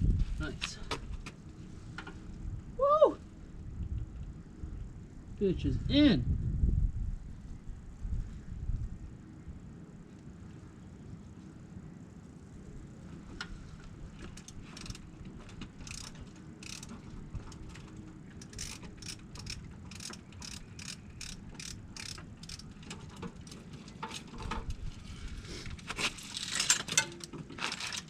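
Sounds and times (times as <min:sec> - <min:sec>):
chain hoist ratcheting clicks: 0:14.3 - 0:24.7, 0:26.0 - 0:28.0.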